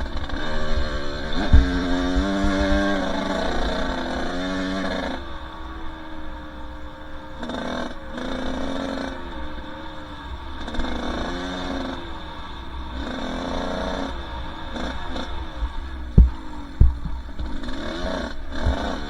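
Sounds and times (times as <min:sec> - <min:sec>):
wind rumble on microphone: 0:00.0 - 0:04.3, 0:15.2 - 0:19.0
dirt bike engine revving: 0:00.0 - 0:19.0.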